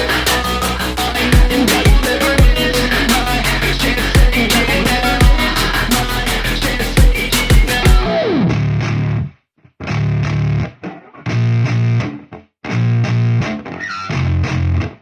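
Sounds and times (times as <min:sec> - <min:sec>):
drum beat: 0:00.0 - 0:08.1
distorted electric guitar riffs: 0:00.0 - 0:15.0.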